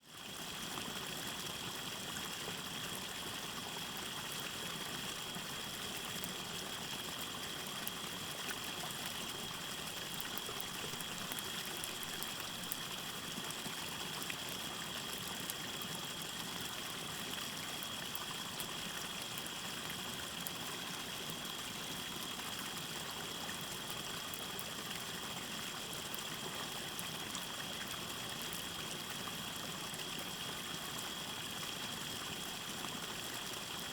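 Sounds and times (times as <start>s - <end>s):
stream trickling: 0.1s - 33.9s
campfire crackles: 5.4s - 14.3s.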